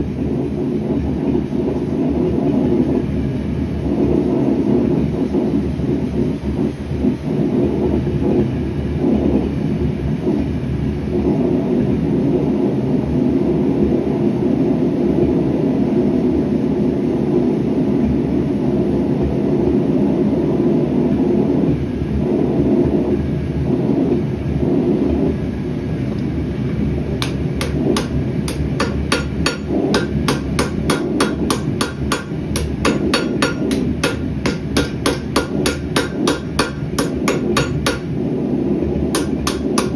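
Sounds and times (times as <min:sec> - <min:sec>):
gas forge burner rushing: 0:25.9 - 0:39.9
hammer blows on hot metal: 0:27.0 - 0:38.4, 0:39.0 - 0:39.9.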